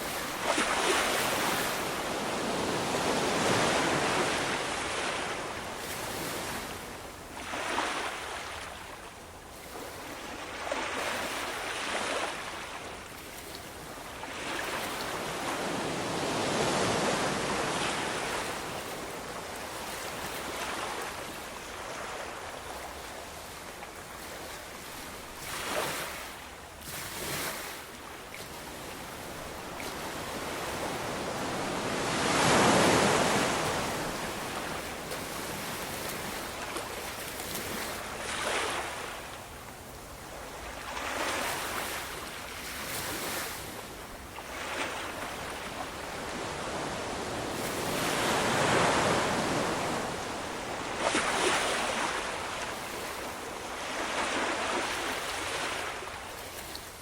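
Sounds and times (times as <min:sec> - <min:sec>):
ocean waves breaking: 0:00.0 - 0:06.8, 0:14.1 - 0:22.9, 0:24.2 - 0:39.3, 0:44.4 - 0:56.8.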